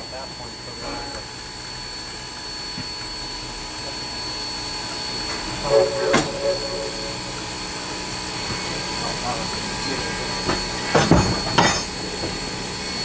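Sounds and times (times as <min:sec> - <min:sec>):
steam locomotive hissing: 0:05.5 - 0:07.6
short pitched sound: 0:05.5 - 0:07.8.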